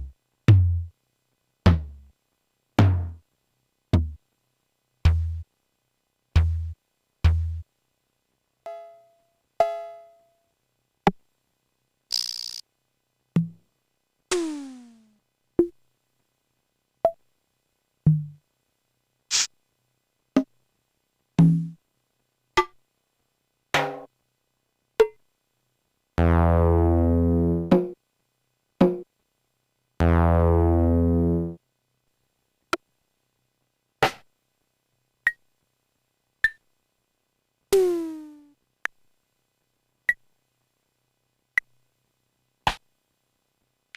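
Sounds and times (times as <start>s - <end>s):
buzzing low notes: 30.0s - 31.6s.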